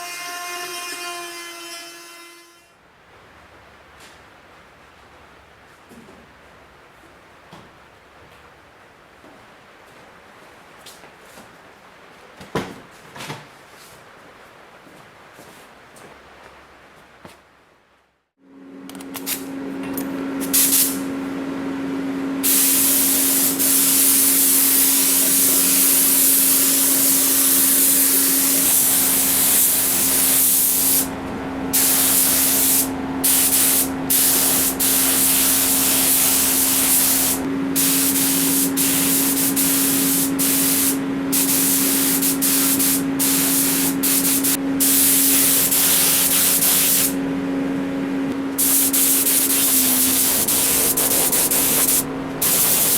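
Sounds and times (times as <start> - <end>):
steady machine hum: 18.4 - 52.9
compressed air gun hissing: 20.4 - 21.1, 22.4 - 31.1, 31.7 - 47.2, 48.6 - 52.9.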